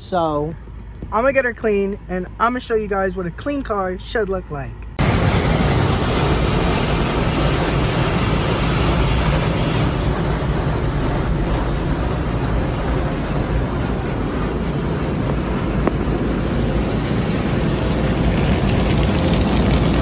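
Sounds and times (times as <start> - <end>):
low rumble: 4.8 - 20.0
car wash equipment rushing: 5.0 - 20.0.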